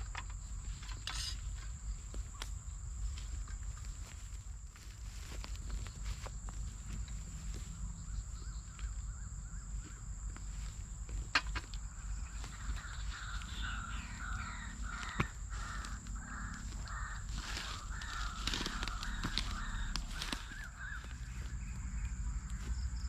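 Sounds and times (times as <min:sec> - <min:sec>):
low outdoor rumble: 0:00.0 - 0:23.0
steady high whine: 0:00.0 - 0:23.0
crow cawing: 0:11.9 - 0:22.4.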